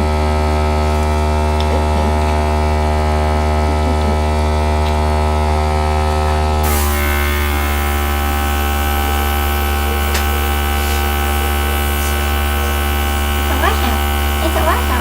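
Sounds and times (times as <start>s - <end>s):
electric air gun running: 4.7s - 15.0s.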